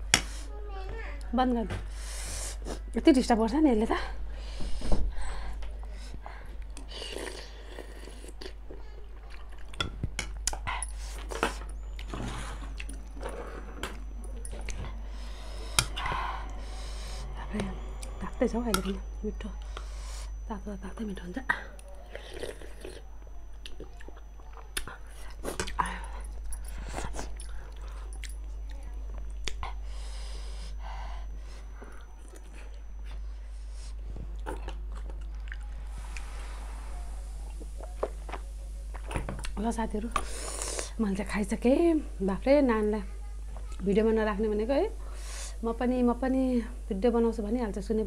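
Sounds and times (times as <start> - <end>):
person chewing: 6.5 - 18.2, 21.8 - 29.7, 34.1 - 36.3.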